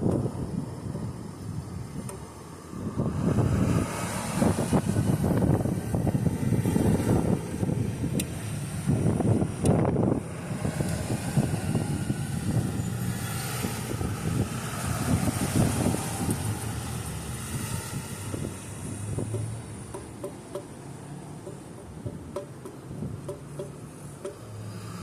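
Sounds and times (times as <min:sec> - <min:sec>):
strong wind gusting on microphone: 0:00.0 - 0:19.5.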